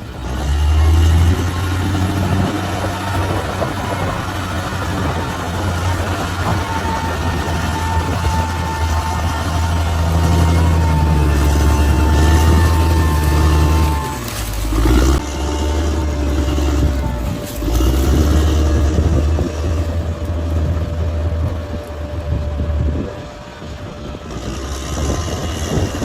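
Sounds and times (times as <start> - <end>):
bulldozer diesel engine droning: 0.0 - 26.0.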